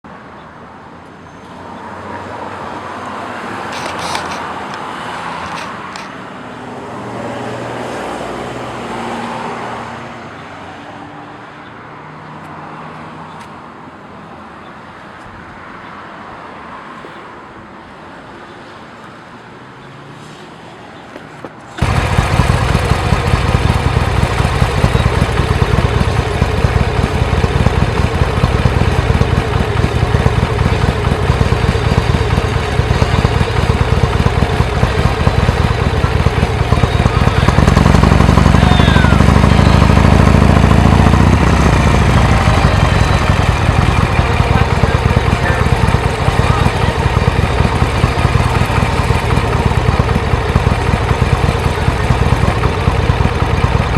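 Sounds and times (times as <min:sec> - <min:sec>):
traffic passing: 0:00.0 - 0:53.9
loud engine running close by: 0:03.4 - 0:09.9, 0:21.8 - 0:53.9.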